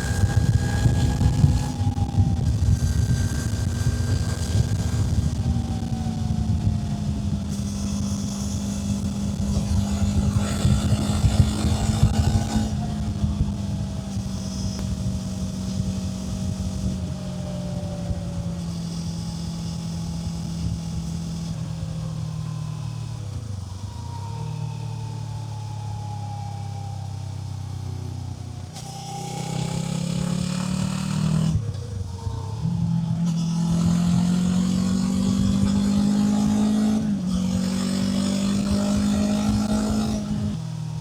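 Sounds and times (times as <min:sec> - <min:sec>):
wind rush: 0:00.0 - 0:17.2
motorcycle engine running: 0:00.0 - 0:41.0.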